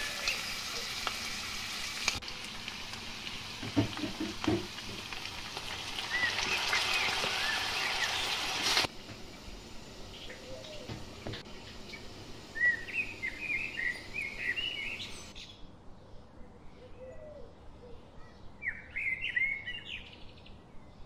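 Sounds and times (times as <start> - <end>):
steady hiss: 0.0 - 15.3
songbird chirping: 11.6 - 21.0.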